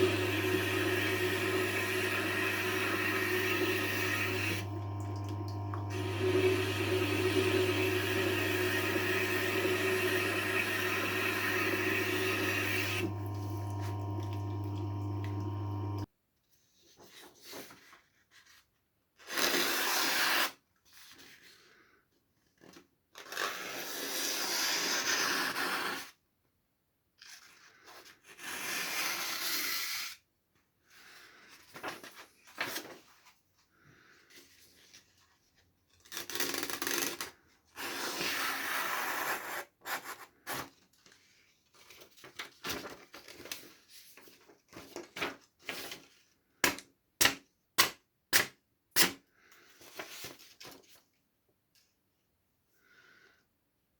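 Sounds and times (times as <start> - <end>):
sharpener motor humming: 0.0 - 16.0.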